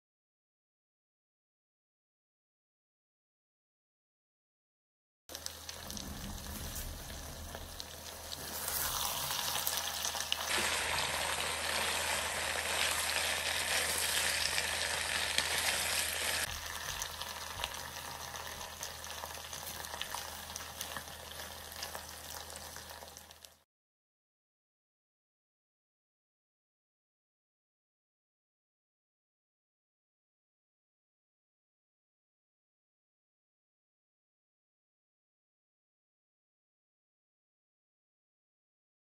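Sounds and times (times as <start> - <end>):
chicken and vegetables sizzling: 5.3 - 23.7.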